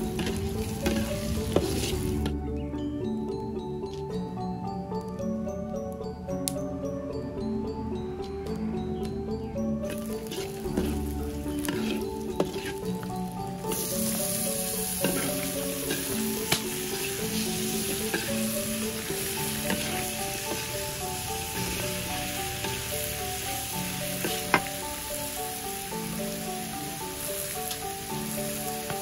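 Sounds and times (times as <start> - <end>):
metal spatula scraping wok: 0.0 - 2.3, 9.9 - 23.0, 24.0 - 25.0
stir-fry sizzling in a wok: 0.0 - 2.3, 9.9 - 29.0.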